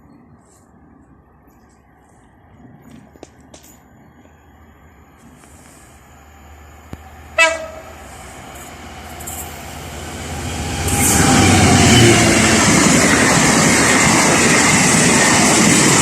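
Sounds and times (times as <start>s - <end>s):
train passing on rails: 1.2s - 16.0s
train horn blast: 7.4s - 8.0s.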